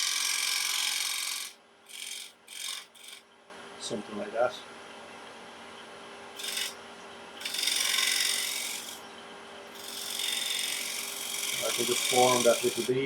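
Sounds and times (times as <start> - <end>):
wood lathe humming: 0.0 - 3.2, 6.4 - 6.8, 7.4 - 9.0, 9.8 - 13.0
turning tool cutting wood hissing: 6.4 - 6.8, 7.4 - 9.0, 9.8 - 13.0.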